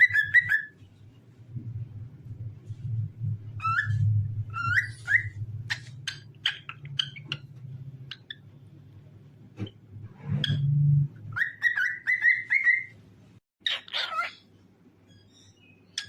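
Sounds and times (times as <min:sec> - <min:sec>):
cockatiel whistling: 0:00.0 - 0:00.7, 0:03.6 - 0:07.3, 0:11.3 - 0:12.9
cockatiel chirping: 0:00.0 - 0:00.8, 0:03.6 - 0:07.5, 0:11.3 - 0:13.0, 0:13.6 - 0:14.5.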